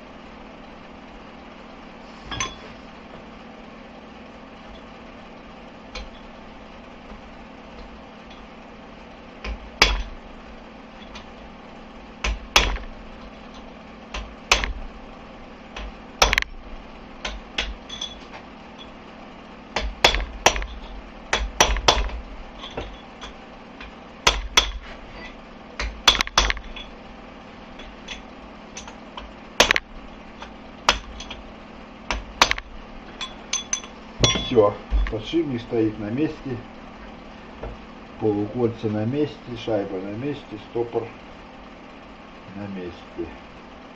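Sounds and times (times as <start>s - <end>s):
hammer striking steel: 9.5s - 10.2s, 17.2s - 19.0s, 19.8s - 23.4s, 24.2s - 27.0s, 30.4s - 31.4s, 32.1s - 34.7s.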